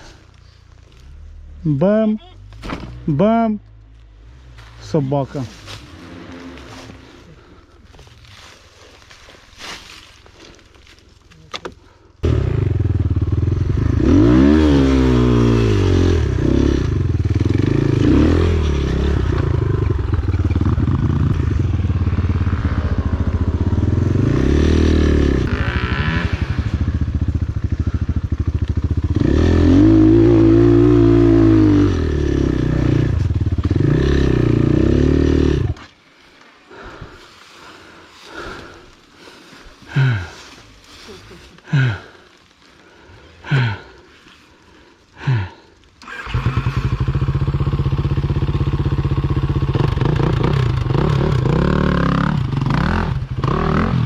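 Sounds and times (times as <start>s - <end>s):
motorcycle engine revving: 5.6s - 7.6s, 12.2s - 35.9s, 46.0s - 54.0s.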